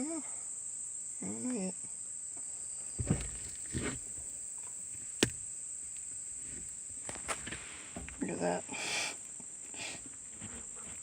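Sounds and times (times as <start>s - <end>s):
crickets trilling: 0.0s - 11.0s
dull knocks: 3.0s - 4.1s, 5.2s - 5.4s.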